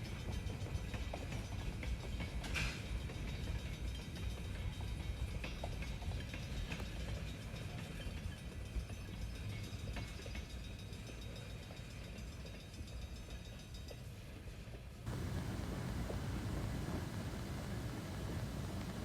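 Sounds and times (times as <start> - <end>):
train rumbling by: 15.1 - 19.0
wheels clicking on rails: 15.1 - 19.0.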